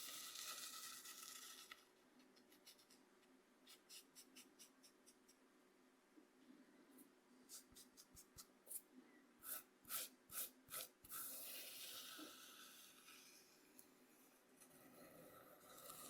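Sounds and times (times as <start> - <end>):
cornmeal scraping on cutting board: 9.4 - 13.4.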